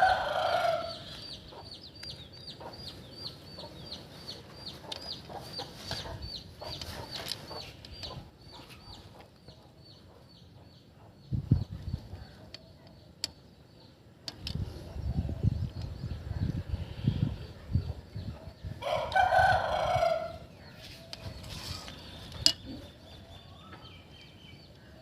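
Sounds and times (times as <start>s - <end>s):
rooster crowing: 0.0s - 1.0s, 18.8s - 20.4s
small bird chirping: 0.4s - 19.2s, 20.0s - 25.0s.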